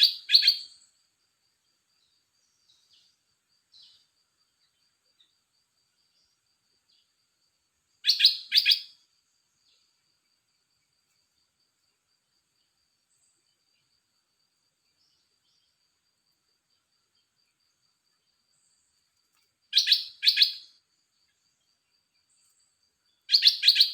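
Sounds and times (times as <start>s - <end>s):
faint high-pitched whine: 0.0s - 23.9s
bird calling: 8.0s - 8.9s, 19.8s - 20.7s, 23.3s - 23.9s.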